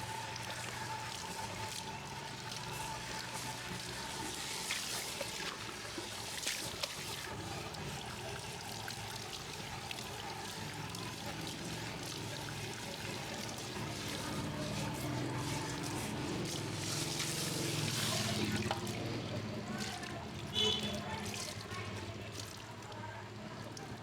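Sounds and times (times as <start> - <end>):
water pouring and trickling: 0.0 - 24.0.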